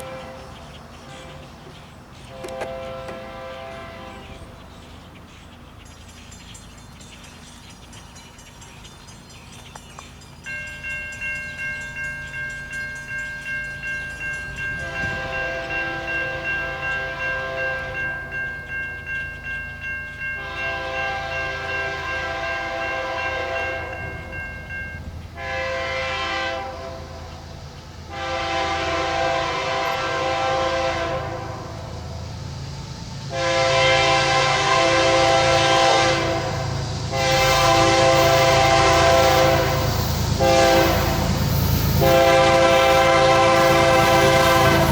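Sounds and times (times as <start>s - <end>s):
train horn blasts: 0.0s - 1.6s, 2.2s - 4.7s, 14.6s - 18.4s, 20.4s - 32.2s, 33.2s - 44.9s
crossing bell ringing: 5.7s - 32.6s, 33.2s - 44.9s.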